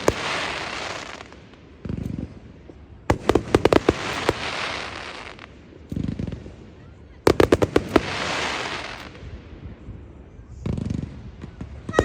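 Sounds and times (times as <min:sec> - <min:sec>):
fireworks hissing: 0:00.0 - 0:02.3, 0:03.1 - 0:06.4
fireworks bangs: 0:00.0 - 0:12.0.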